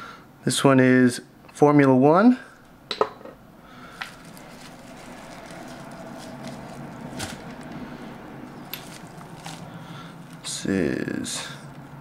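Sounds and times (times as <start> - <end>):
light rustling of packaging: 3.9 - 11.9.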